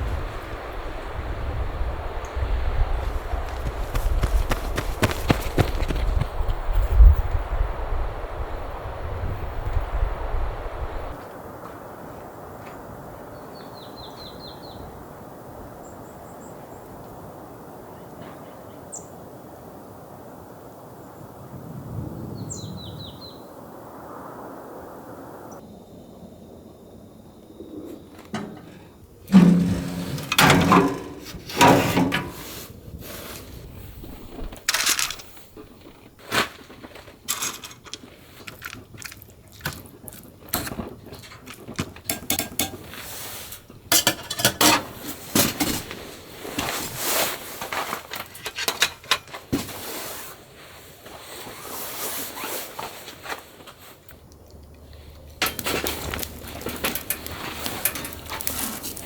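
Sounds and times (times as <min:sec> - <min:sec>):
dishes and utensils clinking: 0:29.3 - 0:32.5, 0:43.9 - 0:45.8.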